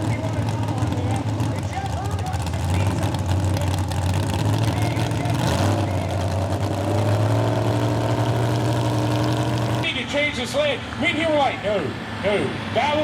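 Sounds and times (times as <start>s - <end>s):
engine idling: 0.0s - 9.9s.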